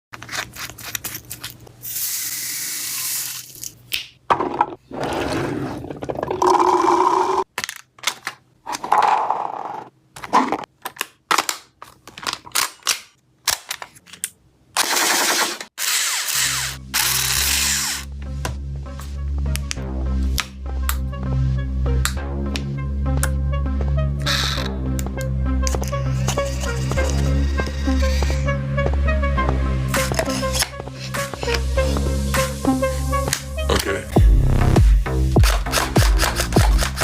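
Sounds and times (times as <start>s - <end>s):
toy blaster firing: 14.8s - 18.0s
electronic music with heavy bass: 19.0s - 37.0s.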